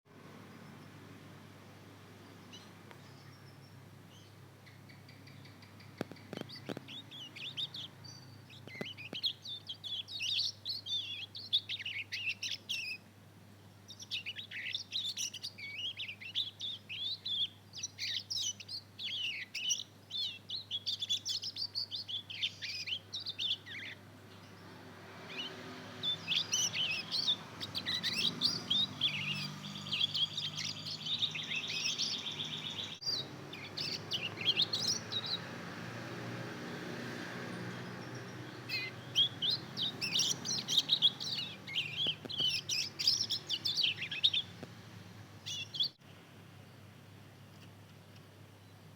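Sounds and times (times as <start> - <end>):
canary twittering: 4.2 - 13.0, 13.9 - 35.8, 37.8 - 44.6, 45.4 - 46.0.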